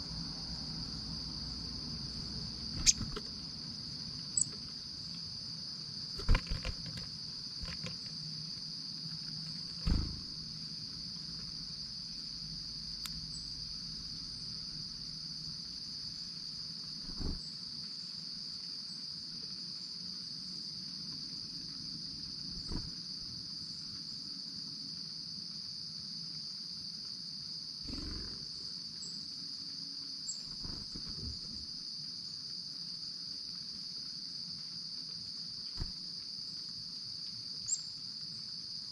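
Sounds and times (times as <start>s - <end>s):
crickets chirping: 0.0s - 38.9s
sharp knocks and thumps: 6.2s - 8.0s, 9.8s - 10.4s.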